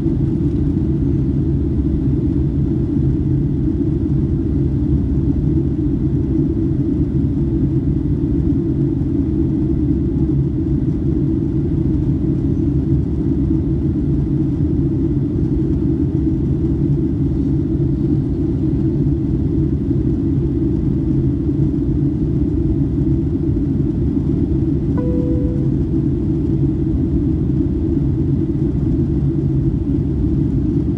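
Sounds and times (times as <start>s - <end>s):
airliner cabin engine rumble: 0.0s - 30.9s
faint high tone: 25.0s - 26.2s.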